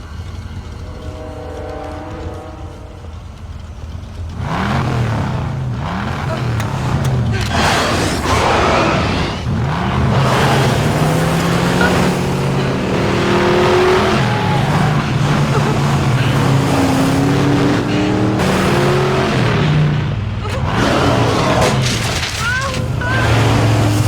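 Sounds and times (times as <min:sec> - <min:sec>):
vehicle engines revving hard: 0:03.8 - 0:24.0.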